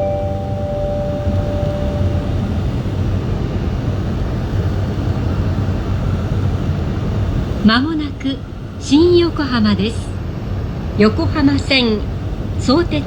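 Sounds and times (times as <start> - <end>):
onboard chime: 0.0 - 2.8
train rumble inside carriage: 0.0 - 13.0.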